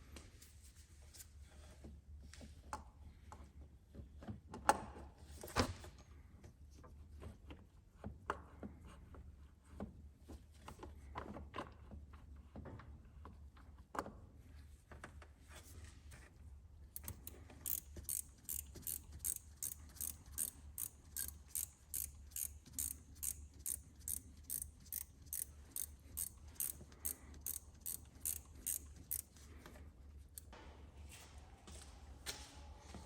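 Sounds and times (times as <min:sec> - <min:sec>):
ratchet wrench clicking: 0:17.0 - 0:29.4.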